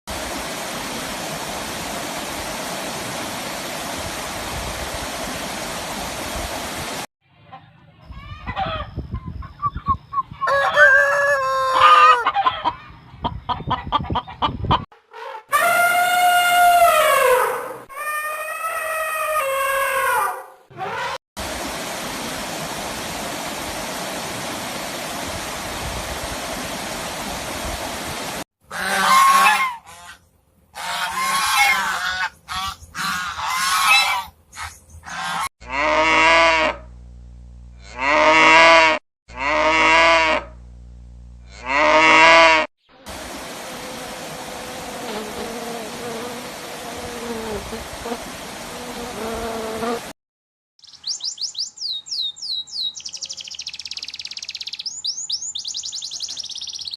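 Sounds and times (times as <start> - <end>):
farm animals honking calls: 10.4 - 12.7, 28.7 - 30.2, 30.8 - 36.9, 37.8 - 40.6, 41.5 - 42.7.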